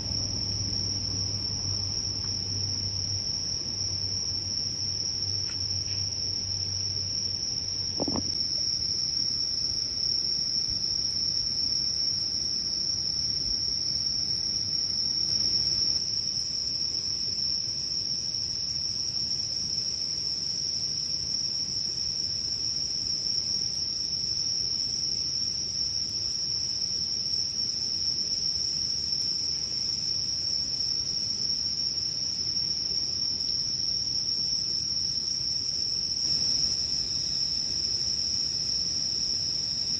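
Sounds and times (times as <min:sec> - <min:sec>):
crickets chirring: 0:00.0 - 0:39.9
low background hiss: 0:26.1 - 0:39.9.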